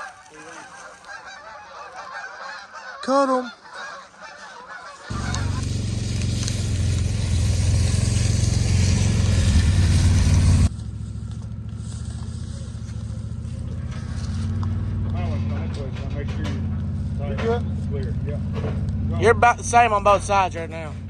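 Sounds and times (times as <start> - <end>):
loud hissing rush: 5.1 - 10.7
vehicle engine running: 5.1 - 21.0.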